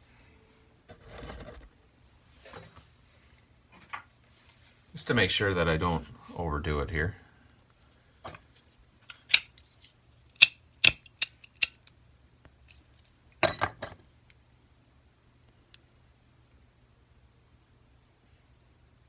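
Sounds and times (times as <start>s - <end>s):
small tools clinking on a bench: 13.4s - 14.0s.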